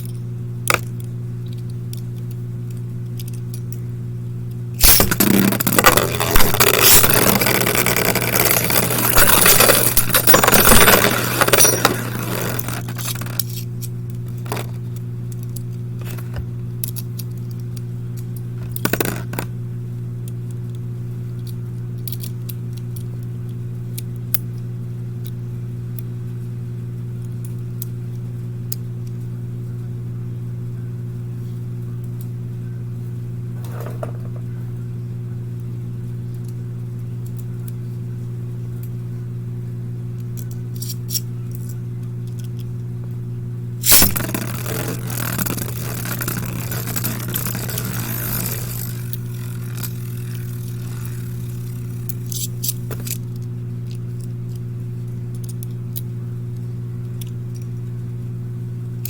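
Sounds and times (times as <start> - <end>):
low electrical hum: 0.0 - 59.0
spinning tops clattering in stadium: 4.8 - 13.4, 43.8 - 53.1.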